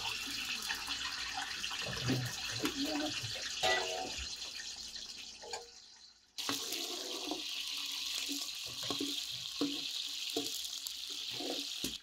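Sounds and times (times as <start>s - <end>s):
onions sizzling in oil: 6.4s - 12.0s.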